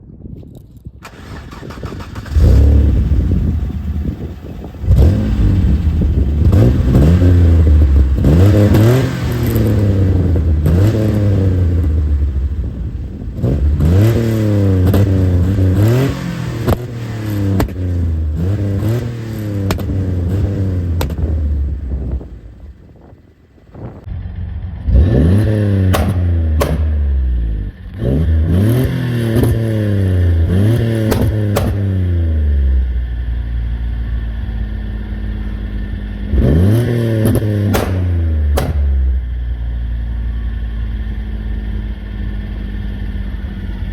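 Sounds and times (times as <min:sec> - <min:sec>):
car engine revving: 0:01.1 - 0:43.9
exhaust pops and bangs: 0:14.8 - 0:23.1, 0:25.4 - 0:29.6, 0:30.4 - 0:32.1, 0:36.8 - 0:39.4.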